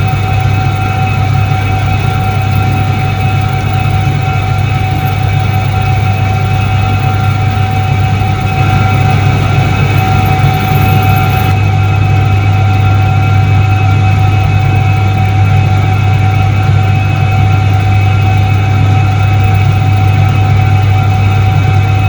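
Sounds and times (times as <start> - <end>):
washing machine motor humming: 0.0 - 17.1
faint whining tones: 0.0 - 22.0.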